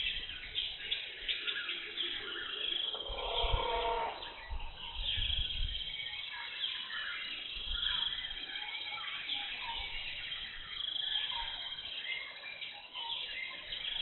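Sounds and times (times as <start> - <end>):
birds chirping and calling: 0.0 - 14.0
low pitched bird call: 1.4 - 6.2.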